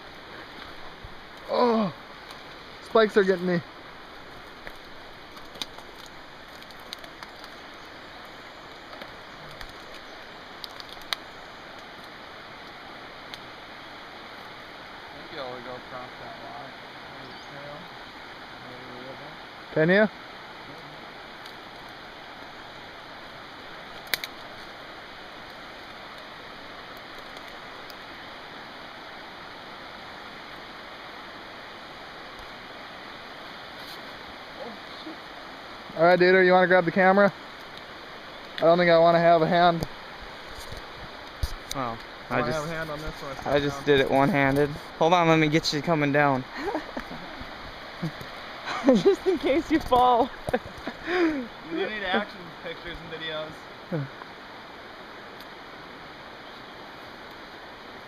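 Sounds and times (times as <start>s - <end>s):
stream water rushing: 0.0s - 58.0s
sharp clicks and snaps: 10.6s - 11.2s, 24.0s - 24.5s.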